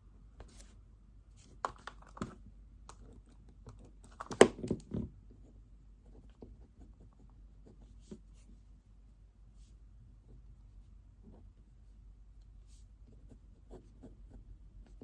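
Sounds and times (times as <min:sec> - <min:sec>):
faint ticks and scratches: 0:05.3 - 0:08.6.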